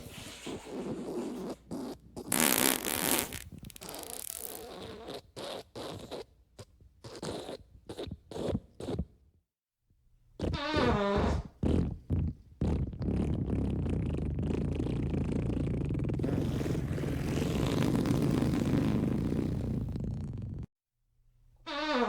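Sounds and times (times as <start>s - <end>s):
fart sound effects: 0.4s - 6.3s, 10.4s - 20.7s.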